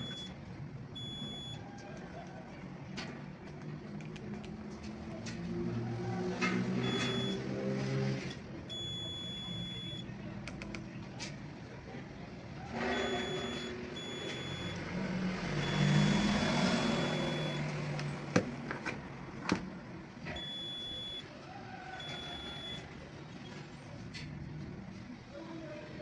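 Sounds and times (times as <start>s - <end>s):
electronic beeper tone: 0.0s - 0.3s, 12.8s - 14.8s, 15.6s - 17.6s, 22.0s - 22.8s
sharp clicks: 10.4s - 10.9s.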